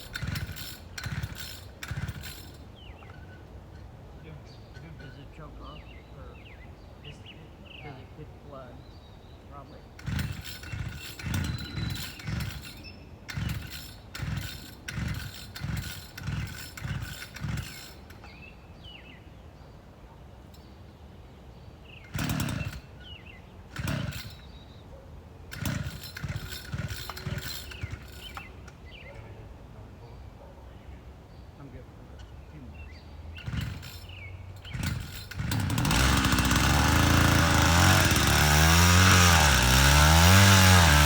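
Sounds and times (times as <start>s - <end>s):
engine turning over in chugs: 0.0s - 3.2s, 10.0s - 18.4s, 22.0s - 24.5s, 25.5s - 28.8s, 33.4s - 41.0s
recoil starter cord rasping: 0.0s - 3.2s, 10.0s - 18.4s, 22.0s - 24.5s, 25.5s - 28.8s, 33.4s - 41.0s.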